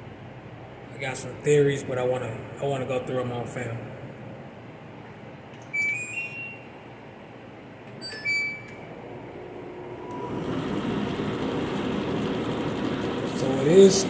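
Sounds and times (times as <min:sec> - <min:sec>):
dryer drum motor hum: 0:09.1 - 0:14.0.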